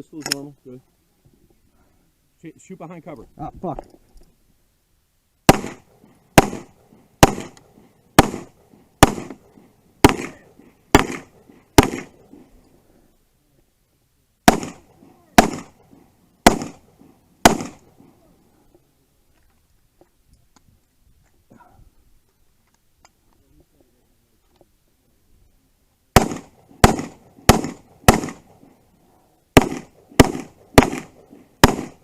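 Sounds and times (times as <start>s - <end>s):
pistol shots: 5.5s - 12.4s, 14.4s - 18.1s, 26.2s - 28.7s, 29.6s - 32.0s.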